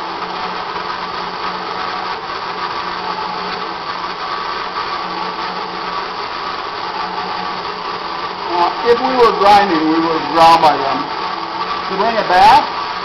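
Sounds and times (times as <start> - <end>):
knife grinder motor whirring: 0.0 - 13.0.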